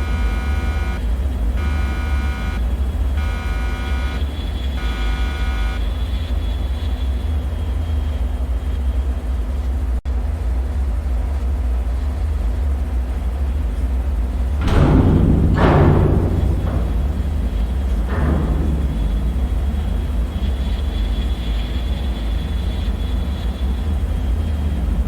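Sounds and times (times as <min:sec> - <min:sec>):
buzzing alarm tone pulsing: 0:00.0 - 0:01.0, 0:01.6 - 0:02.6, 0:03.2 - 0:05.8
deep low rumbling drone: 0:14.3 - 0:25.0.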